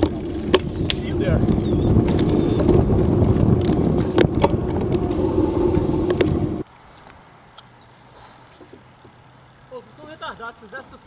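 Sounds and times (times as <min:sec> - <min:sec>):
wind buffeting microphone: 0:00.0 - 0:06.7
faint hum: 0:00.1 - 0:06.6.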